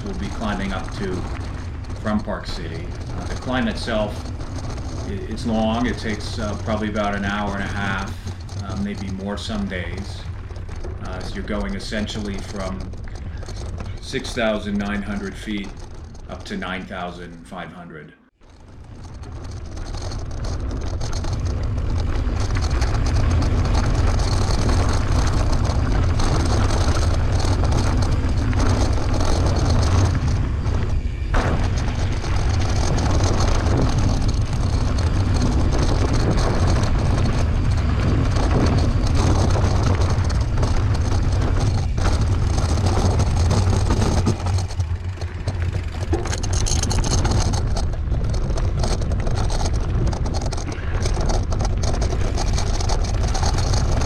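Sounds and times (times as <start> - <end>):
wind rumble on microphone: 0.0 - 17.3, 18.4 - 54.0.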